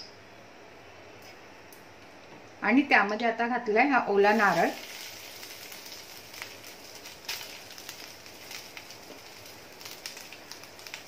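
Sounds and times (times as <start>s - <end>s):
coconut sizzling in a pan: 4.1s - 11.0s.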